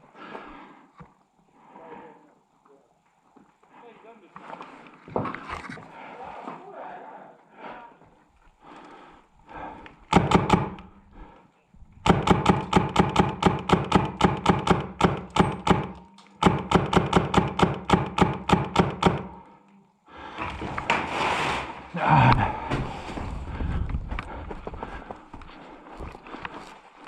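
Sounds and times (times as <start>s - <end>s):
airsoft gun shots: 10.1s - 10.8s, 12.0s - 19.4s.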